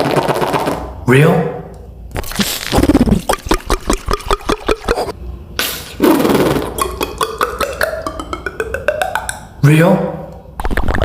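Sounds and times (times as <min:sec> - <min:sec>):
beatbox mouth clicks: 0:02.2 - 0:09.6, 0:10.6 - 0:11.0.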